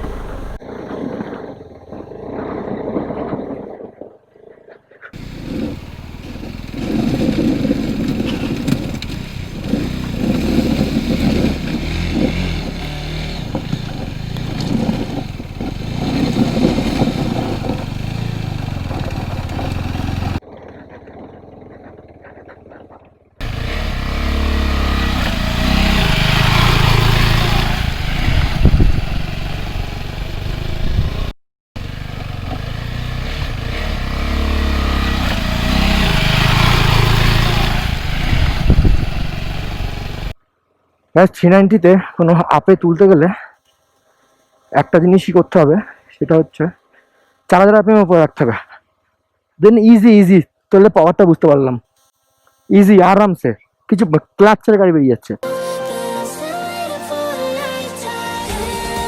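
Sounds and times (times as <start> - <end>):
motorcycle engine revving: 0.0 - 1.2, 5.2 - 20.5, 23.4 - 40.4
bike rattling and scraping: 0.0 - 3.6, 5.1 - 40.4.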